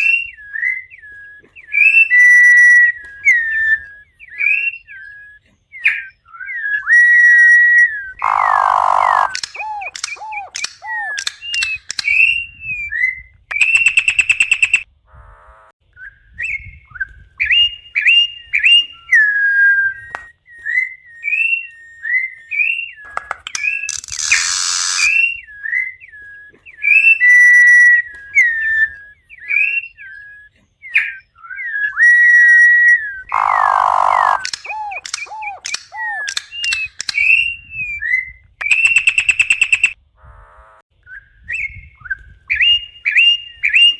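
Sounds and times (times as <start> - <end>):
bird whistling song: 0.0 - 14.9, 15.9 - 40.0, 41.0 - 43.9
harsh buzzy bird notes: 7.2 - 12.4, 32.5 - 37.7.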